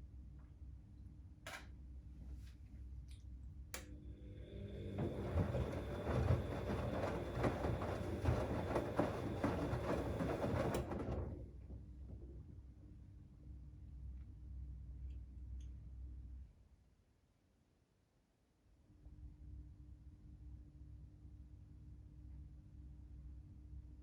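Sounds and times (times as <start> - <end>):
washing machine drum turning: 4.9 - 11.4.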